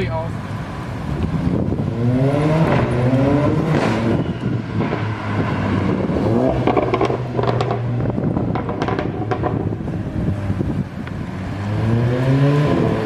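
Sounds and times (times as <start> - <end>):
car exhaust revving: 0.9 - 13.0
exhaust pops: 5.6 - 10.0.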